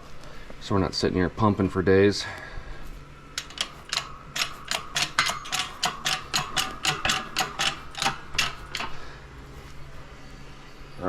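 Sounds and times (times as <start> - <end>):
hydraulic press metallic clicks: 3.4 - 9.1.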